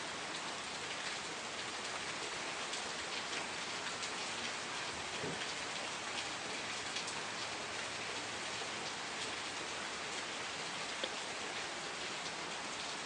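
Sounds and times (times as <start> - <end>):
raindrops ticking on surfaces: 0.0 - 13.0
steady rain hiss: 0.0 - 13.0.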